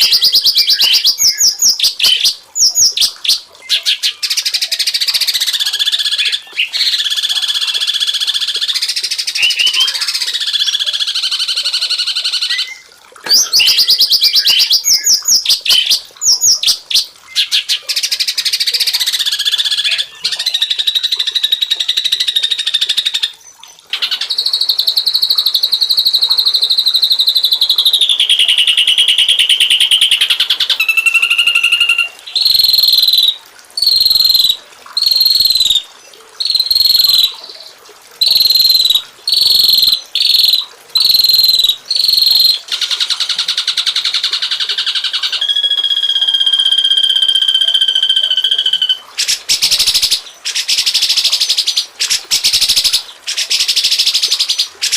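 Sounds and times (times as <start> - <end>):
songbirds singing: 0.0 - 42.8.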